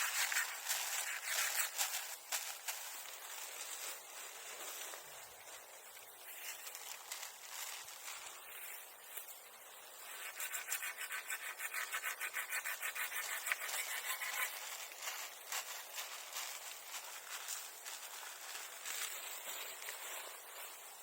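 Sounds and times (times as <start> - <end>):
hand saw cutting wood: 10.2 - 14.6.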